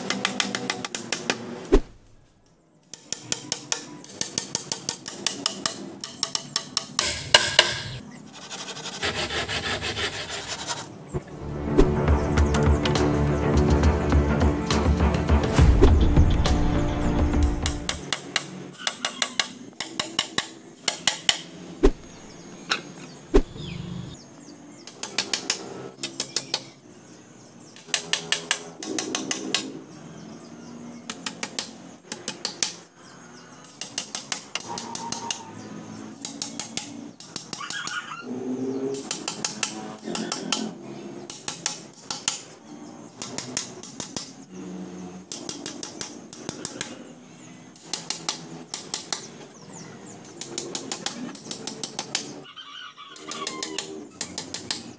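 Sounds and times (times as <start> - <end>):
hammer tapping small nails: 0.0 - 1.4, 2.9 - 8.0.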